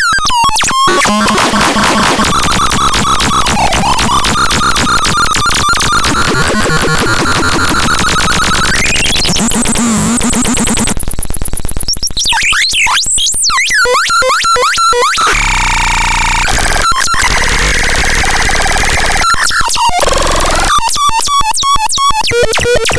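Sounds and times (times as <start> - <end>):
swooping synthesizer chirps: 0.6 - 10.9
synthesizer pulsing tone sweeping up: 0.6 - 10.9.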